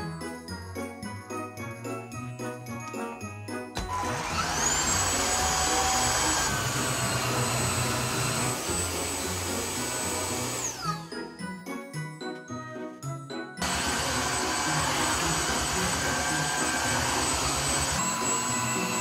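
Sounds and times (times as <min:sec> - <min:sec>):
stick vacuum motor whine: 0:03.8 - 0:11.2, 0:13.6 - 0:19.0.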